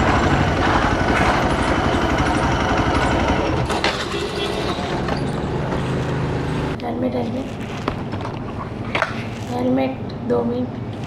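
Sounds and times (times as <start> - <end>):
motorcycle engine idling: 0.0 - 6.8
voices: 0.0 - 11.0.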